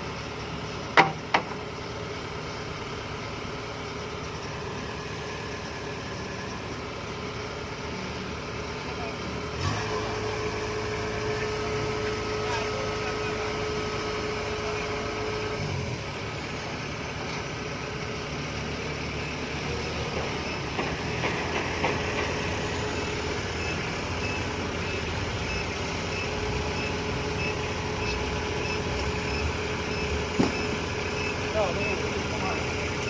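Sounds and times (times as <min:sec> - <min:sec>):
heavy vehicle engine running: 0:00.0 - 0:33.0
reversing alarm beeping: 0:19.2 - 0:33.0.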